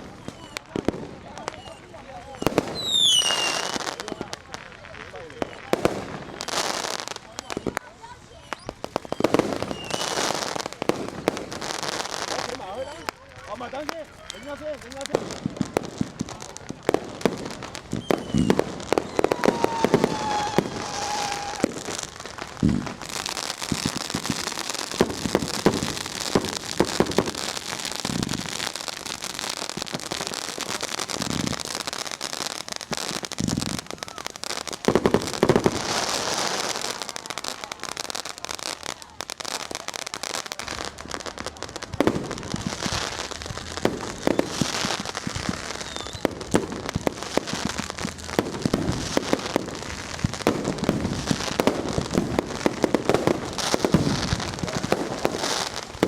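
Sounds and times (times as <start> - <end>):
fireworks crackling and banging: 0.0 - 56.0
firework falling whistle: 1.4 - 4.4, 8.4 - 10.3, 17.9 - 22.9, 45.3 - 46.4.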